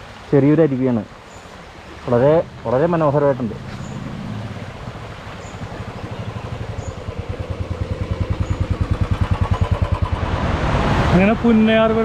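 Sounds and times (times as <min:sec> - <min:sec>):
motorcycle engine thumping: 0:04.7 - 0:10.4.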